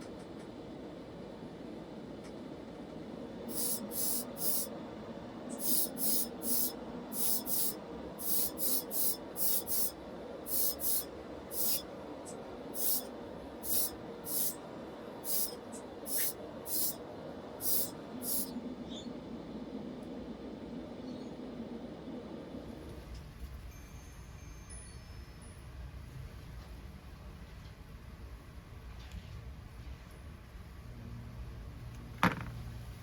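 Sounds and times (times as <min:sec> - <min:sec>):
steady low hum: 0:00.0 - 0:23.8
short spray bursts: 0:03.5 - 0:04.7, 0:05.5 - 0:11.9, 0:12.7 - 0:14.6, 0:15.2 - 0:17.0, 0:17.6 - 0:18.5.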